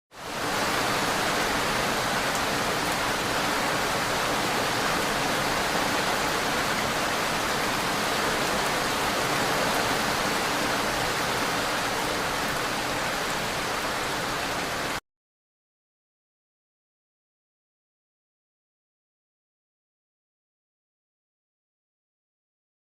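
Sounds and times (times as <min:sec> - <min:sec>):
water rushing: 0:00.2 - 0:15.0.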